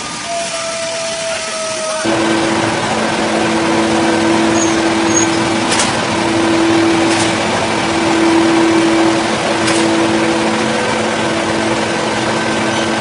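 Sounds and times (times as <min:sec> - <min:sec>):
sharp clicks: 0:02.1 - 0:11.1.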